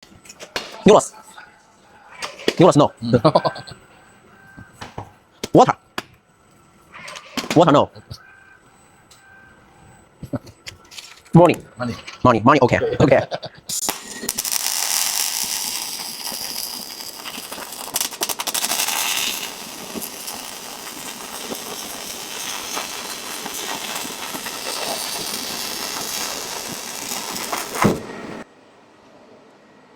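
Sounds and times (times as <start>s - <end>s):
sharp spatter crackles: 13.7s - 28.5s
welding arc crackling and hissing: 13.7s - 28.5s.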